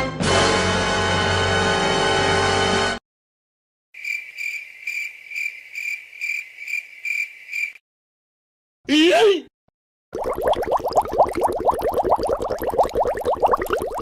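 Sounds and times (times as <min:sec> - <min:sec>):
crickets chirping: 0:04.0 - 0:07.8.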